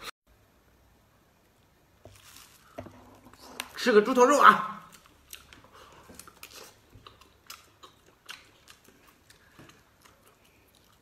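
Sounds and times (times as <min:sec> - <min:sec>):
chewing with wet mouth clicks: 0:04.9 - 0:11.0.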